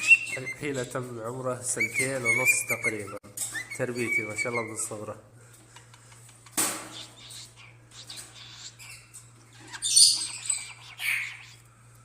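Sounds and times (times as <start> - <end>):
parrot squawking: 0.0 - 0.6, 1.7 - 5.0, 5.8 - 11.7.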